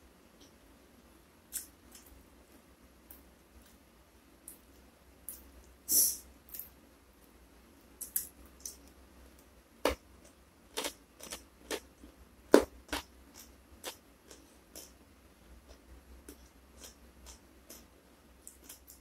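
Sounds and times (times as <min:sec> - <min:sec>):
person chewing crunchy food: 0:09.8 - 0:15.0, 0:15.7 - 0:19.0.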